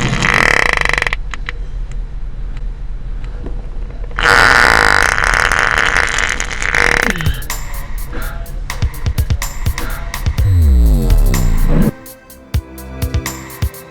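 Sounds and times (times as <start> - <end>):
toy making buzzy fart noise: 0.0 - 1.2, 4.2 - 7.5, 10.4 - 12.0.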